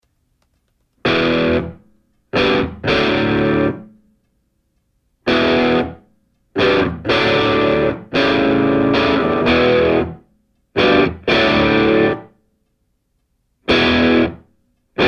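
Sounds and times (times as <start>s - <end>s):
distorted electric guitar power chords: 1.1s - 1.8s, 2.4s - 3.9s, 5.3s - 6.0s, 6.6s - 10.2s, 10.8s - 12.3s, 13.7s - 14.4s.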